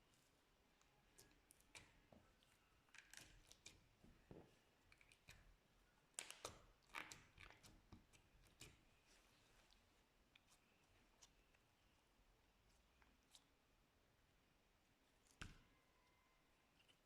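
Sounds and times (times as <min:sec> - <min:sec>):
slime squelching and crackling: 0:06.1 - 0:11.8.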